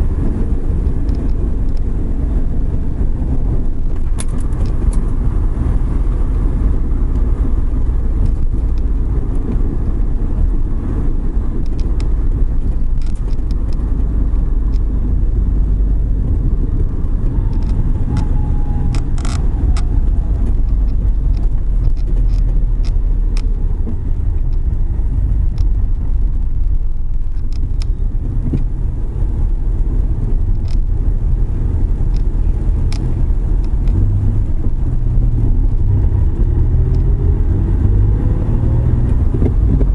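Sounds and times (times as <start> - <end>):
van driving on wet road: 0.0 - 39.9
light ticks: 18.9 - 25.8.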